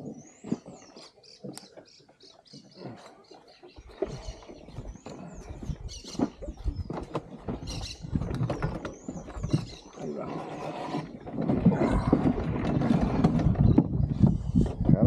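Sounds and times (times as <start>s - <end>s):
birds squeaky chirps: 0.0s - 10.2s.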